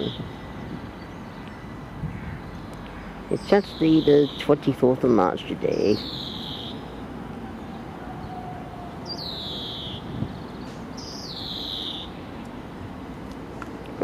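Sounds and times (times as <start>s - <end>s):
bird whistling high calls: 6.0s - 6.9s, 7.6s - 12.2s.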